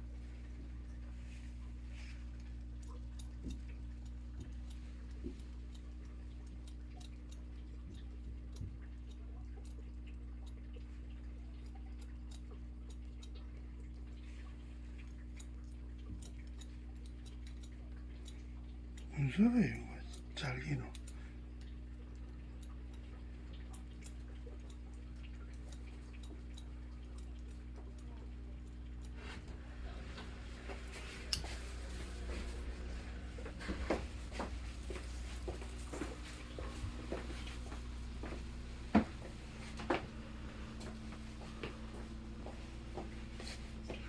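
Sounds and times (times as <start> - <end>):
steady low hum: 0.0 - 44.0
scissors snipping hair: 15.0 - 19.1, 22.1 - 44.0.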